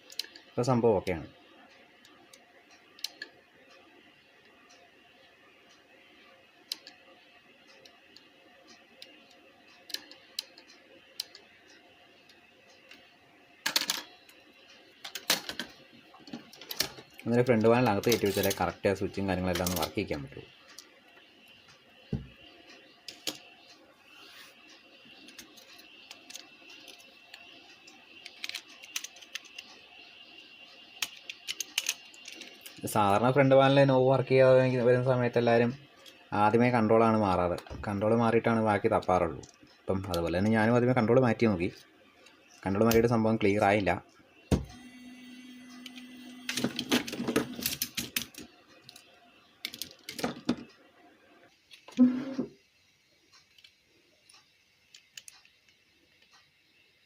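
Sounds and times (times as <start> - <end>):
plastic parts clicking and tapping: 0.0 - 0.4, 9.9 - 11.4, 13.6 - 14.1, 15.0 - 18.6, 19.5 - 20.0, 23.1 - 23.5, 25.2 - 27.5, 28.2 - 29.8, 31.0 - 32.8, 46.5 - 50.8, 53.4 - 56.3
faint high whine: 0.0 - 47.8
low steady hum: 0.0 - 52.5.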